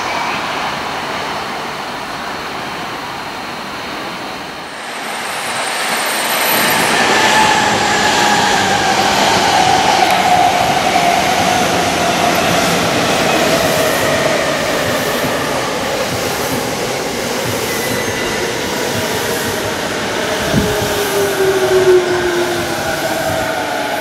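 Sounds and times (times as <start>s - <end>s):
lower falling whine: 1.8s - 24.0s
train motor whine falling: 3.8s - 10.5s.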